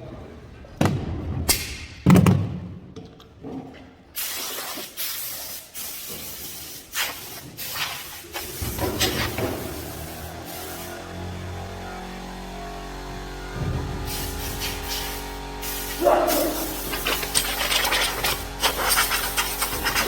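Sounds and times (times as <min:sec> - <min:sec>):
steady hiss in spurts: 0:04.2 - 0:11.0, 0:14.1 - 0:20.0
heavy thump: 0:13.6 - 0:14.2.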